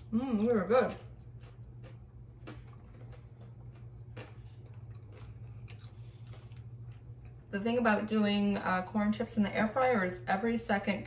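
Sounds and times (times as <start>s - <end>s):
tortilla chip crunching: 0.0s - 7.4s
steady low hum: 0.0s - 11.0s.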